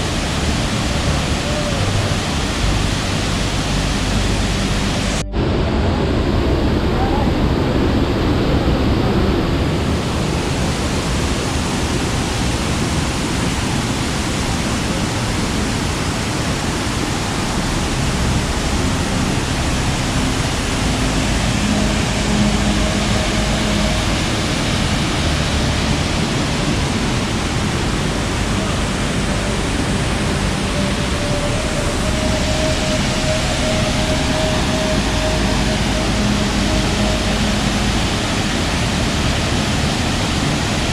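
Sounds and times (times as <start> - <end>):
falling water roaring: 0.0 - 40.9.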